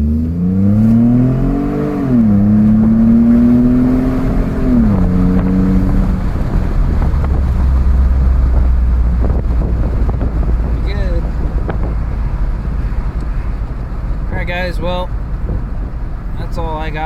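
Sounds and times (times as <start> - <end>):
road and wind noise: 0.0 - 17.0
truck engine accelerating: 0.0 - 17.0.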